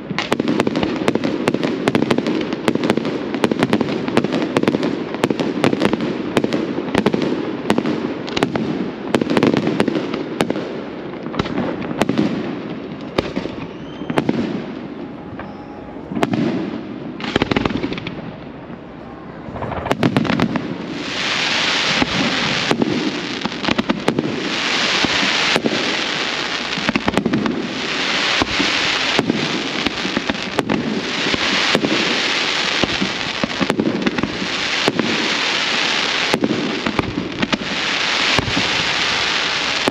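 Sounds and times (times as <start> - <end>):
fireworks bangs: 0.0 - 39.9
fireworks crackling hiss: 19.4 - 39.9.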